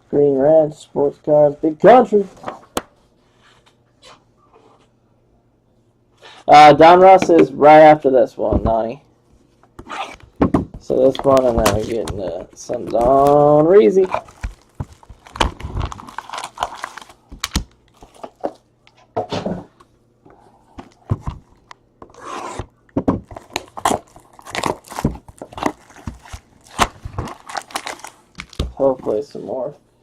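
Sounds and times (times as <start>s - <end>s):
packaging ripping and crinkling: 11.1s - 18.4s, 23.2s - 28.9s.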